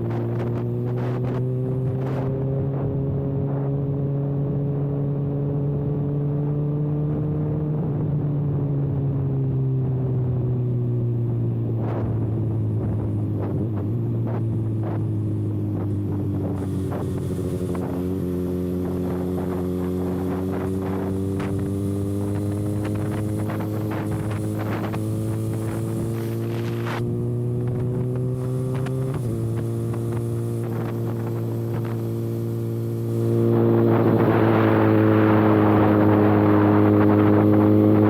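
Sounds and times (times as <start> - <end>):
motorcycle engine cruising: 0.0 - 38.0
wind buffeting microphone: 11.3 - 38.0.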